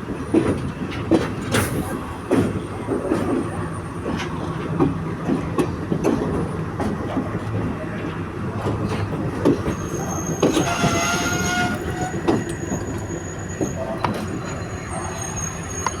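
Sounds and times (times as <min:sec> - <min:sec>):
train rumbling on rails: 0:00.0 - 0:16.0
metallic wheel squeal: 0:09.7 - 0:16.0.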